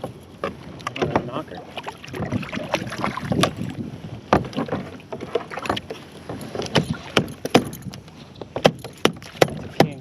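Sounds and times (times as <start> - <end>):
knocking on a kayak: 2.2 - 3.7, 4.3 - 7.8, 8.5 - 10.0.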